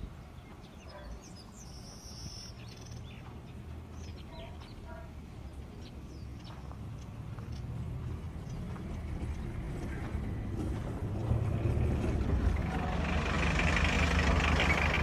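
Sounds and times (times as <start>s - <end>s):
small birds chirping: 0.0s - 11.4s
steady low rumble: 6.9s - 15.0s.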